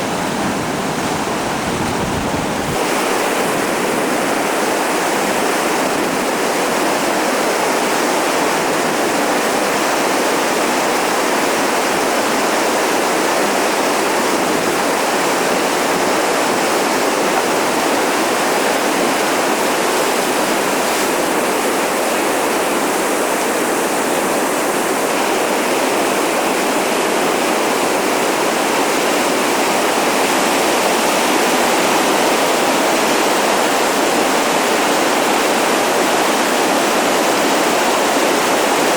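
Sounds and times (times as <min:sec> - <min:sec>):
river rapids rushing: 0:00.0 - 0:38.9.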